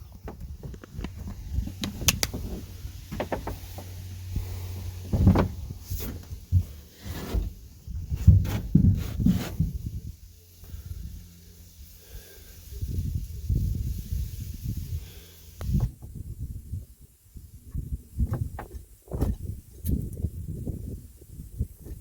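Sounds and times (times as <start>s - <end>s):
hard objects knocking and scraping: 0.1s - 4.0s.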